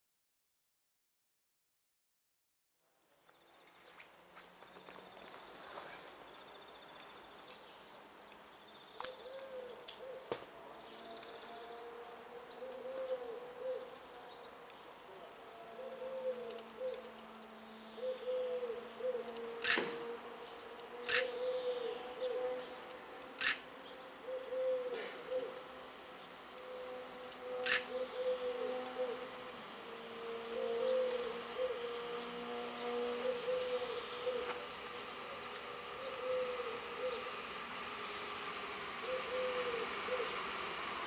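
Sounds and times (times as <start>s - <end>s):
wheels clicking over rail joints: 19.2s - 20.1s, 22.8s - 24.1s.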